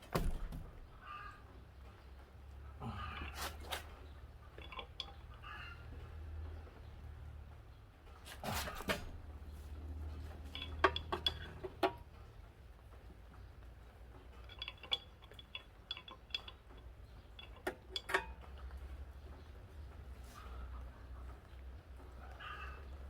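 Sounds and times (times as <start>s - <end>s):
metal tools clinking: 3.1s - 5.7s, 10.0s - 12.1s, 14.3s - 18.8s.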